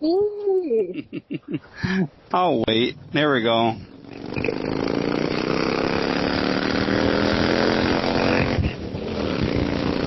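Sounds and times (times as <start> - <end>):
motorcycle engine accelerating: 4.0 - 10.0.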